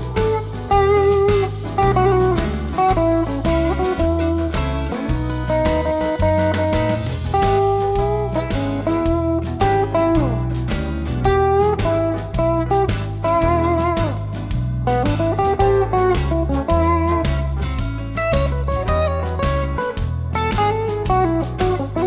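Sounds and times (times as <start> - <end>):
bass line: 0.0 - 22.0
blues shuffle backing track: 0.0 - 22.0
electric guitar blues lead: 0.0 - 22.0.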